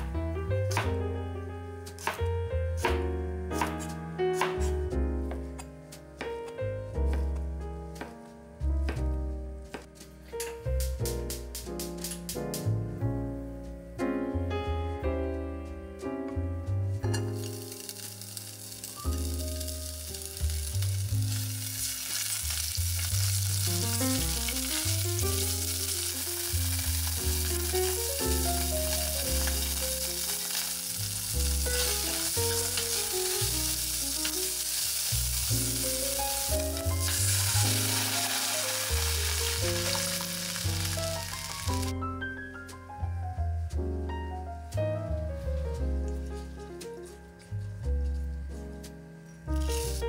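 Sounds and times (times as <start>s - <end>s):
background music: 0.0s - 22.7s, 23.4s - 50.0s
food sizzling in oil: 17.1s - 41.9s, 49.6s - 50.0s.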